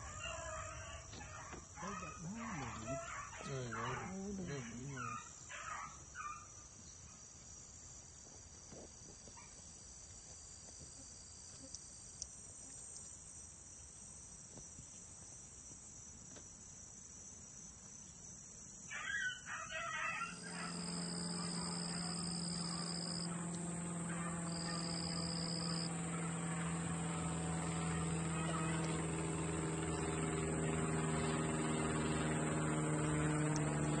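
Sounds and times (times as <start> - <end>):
insects trilling: 0.0 - 34.0
motor humming: 1.8 - 5.1, 20.3 - 34.0.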